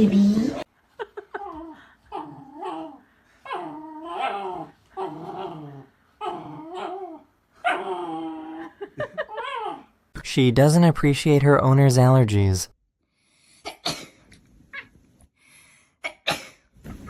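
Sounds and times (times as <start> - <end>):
dog whining and grumbling: 1.3 - 10.0.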